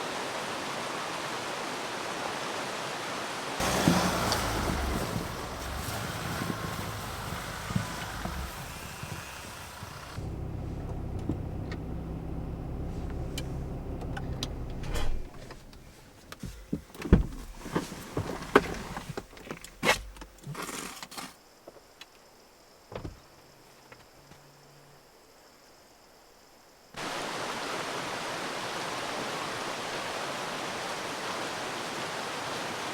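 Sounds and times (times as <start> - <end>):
wind noise: 3.6 - 10.2
low motor hum: 3.6 - 16.0.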